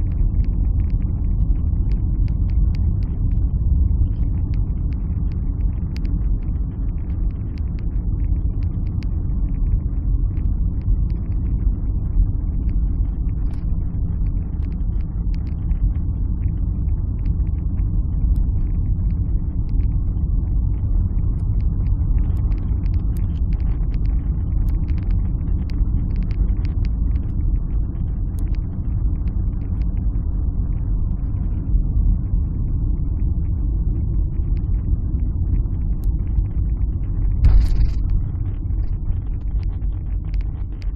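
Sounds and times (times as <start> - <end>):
faint light ticks: 0.1 - 17.6, 18.2 - 20.0, 21.1 - 30.0, 38.8 - 40.9
engine and road rumble: 37.4 - 40.9.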